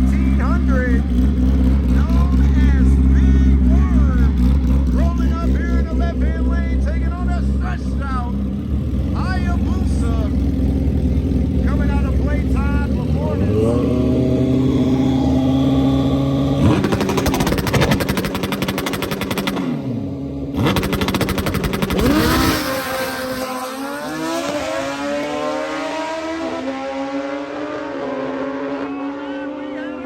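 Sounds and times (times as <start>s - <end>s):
engine idling: 0.0s - 13.7s
drag-racing engine launching: 16.6s - 19.9s, 20.6s - 29.6s.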